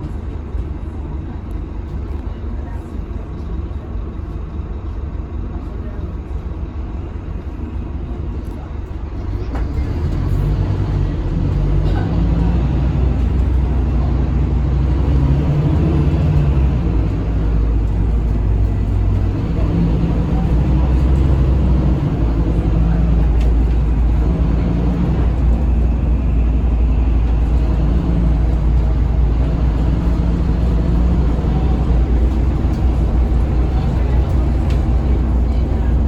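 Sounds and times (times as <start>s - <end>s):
bus engine low drone: 0.0s - 36.0s
road noise: 7.4s - 36.0s.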